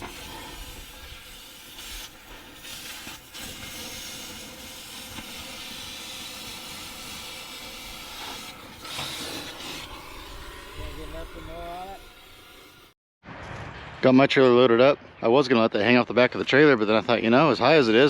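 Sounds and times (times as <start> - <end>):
steady hissing noise: 0.0 - 13.0.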